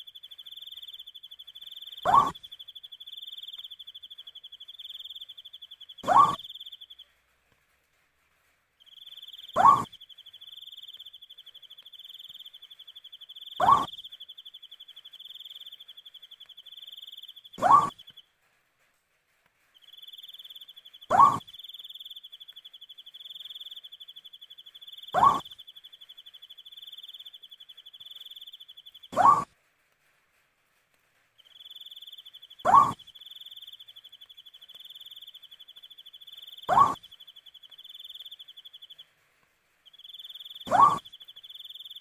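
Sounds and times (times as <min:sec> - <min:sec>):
owl hooting: 0:00.0 - 0:03.9, 0:06.0 - 0:06.9, 0:09.2 - 0:11.0, 0:11.9 - 0:14.4, 0:15.0 - 0:18.2, 0:20.1 - 0:24.3, 0:24.9 - 0:26.0, 0:26.9 - 0:29.5, 0:31.7 - 0:39.0, 0:40.0 - 0:42.0.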